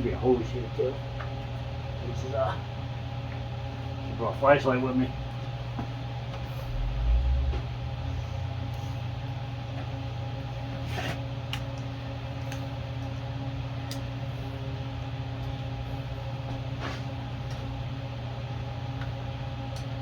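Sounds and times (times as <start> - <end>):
machine hum: 5.1 - 10.8.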